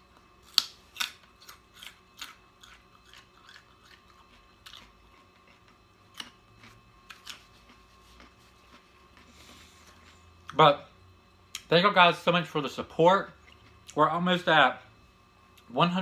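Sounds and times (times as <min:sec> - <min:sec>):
person chewing food: 0:00.1 - 0:10.6, 0:13.4 - 0:14.0.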